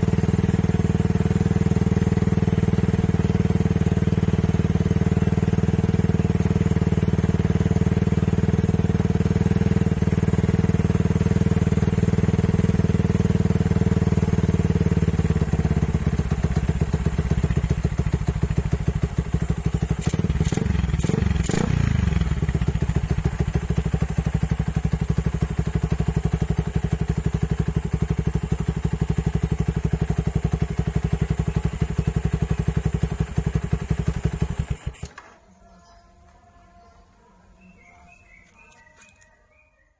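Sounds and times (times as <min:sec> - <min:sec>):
engine throttle blips: 0:00.0 - 0:28.4
motorcycle engine idling: 0:00.0 - 0:39.9.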